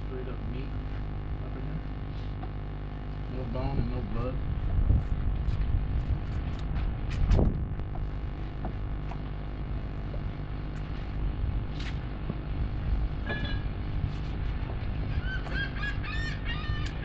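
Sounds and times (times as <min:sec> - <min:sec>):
low mechanical rumble with hum: 0:00.0 - 0:17.0
seabird call: 0:15.1 - 0:17.0.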